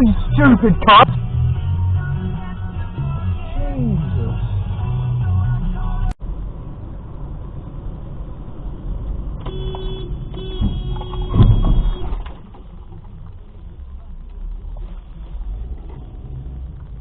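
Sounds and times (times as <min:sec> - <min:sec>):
car road and engine noise: 0:00.0 - 0:17.0
car horn blasts: 0:09.4 - 0:12.2.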